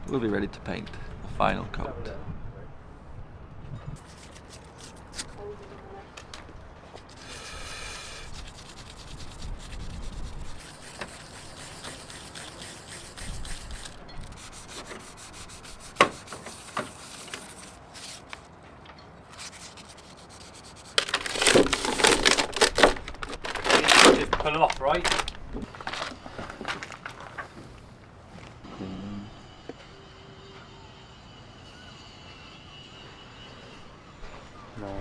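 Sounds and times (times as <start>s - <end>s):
hand rubbing painted hull: 4.0s - 5.4s, 6.9s - 18.5s, 19.3s - 24.1s.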